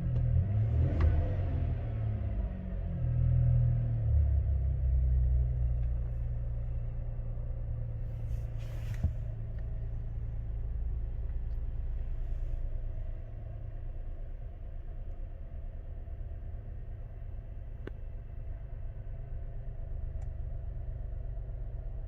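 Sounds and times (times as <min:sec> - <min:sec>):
car engine rumbling: 0:00.0 - 0:22.0
click: 0:17.8 - 0:18.0, 0:20.2 - 0:20.4.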